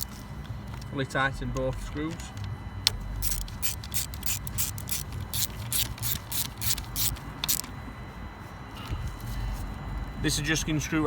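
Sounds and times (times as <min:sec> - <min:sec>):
ratchet wrench clicking: 0:03.2 - 0:07.7.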